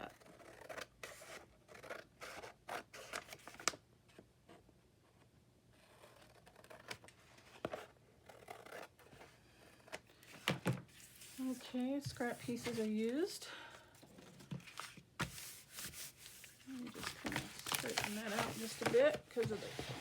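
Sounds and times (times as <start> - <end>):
paper rustling and scraping: 5.9 - 13.4, 14.1 - 20.0.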